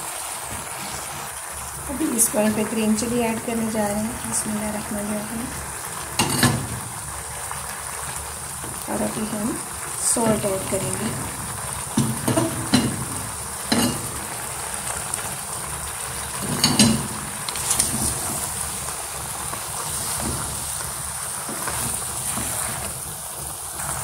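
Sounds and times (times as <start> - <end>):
food sizzling in hot oil: 0.0 - 24.0
knocks and scrapes of stirring: 11.1 - 14.2.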